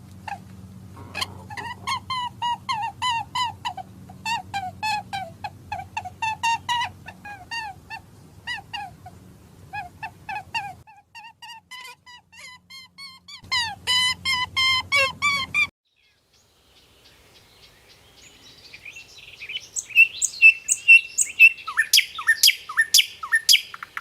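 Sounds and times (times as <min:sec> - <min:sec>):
birds chirping: 0:14.2 - 0:24.0.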